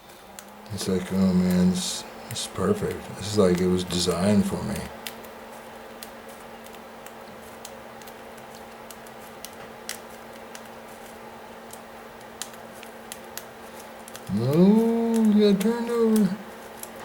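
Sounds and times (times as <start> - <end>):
steady low hum: 0.0 - 17.0
light clicks and taps: 6.0 - 17.0.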